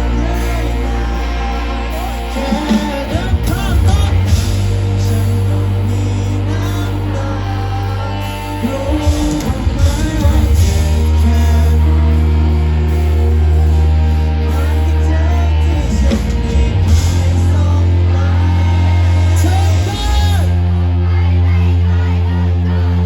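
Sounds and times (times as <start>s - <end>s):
bass guitar: 0.0s - 23.0s
drums: 0.0s - 23.0s
electric guitars: 0.0s - 23.0s
person singing lead vocal: 0.0s - 23.0s.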